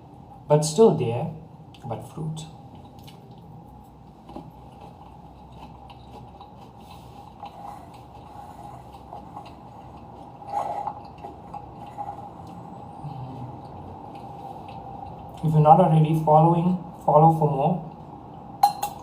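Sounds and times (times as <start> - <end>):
steady background hum: 0.0 - 19.0
utensil clinking against dish: 18.6 - 19.0.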